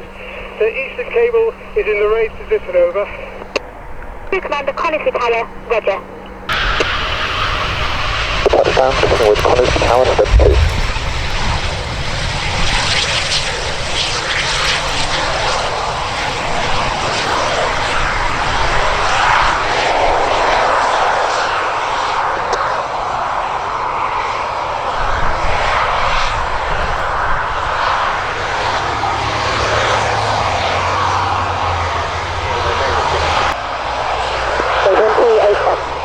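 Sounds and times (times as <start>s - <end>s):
jet engines running loud: 0.0s - 36.0s
low hum: 1.6s - 22.1s, 23.7s - 34.3s.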